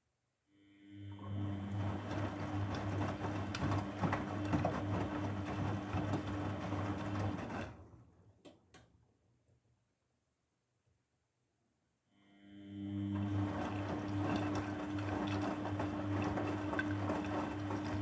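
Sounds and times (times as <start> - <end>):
washing machine humming: 1.2 - 8.4, 12.9 - 18.0.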